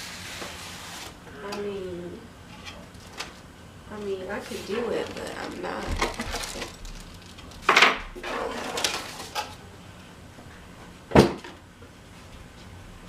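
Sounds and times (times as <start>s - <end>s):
rustling and scraping: 4.4s - 9.6s.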